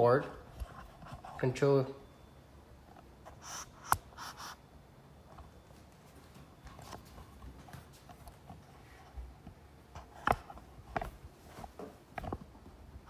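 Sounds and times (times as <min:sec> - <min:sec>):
sharp click: 0:03.6 - 0:04.1.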